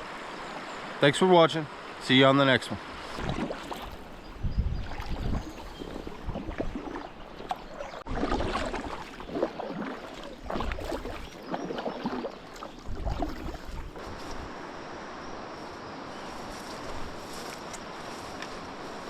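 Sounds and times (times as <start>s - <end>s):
water rushing past hull: 0.0s - 15.3s
paddle strokes splashing: 2.8s - 14.7s
wind gusts on microphone: 2.8s - 19.0s.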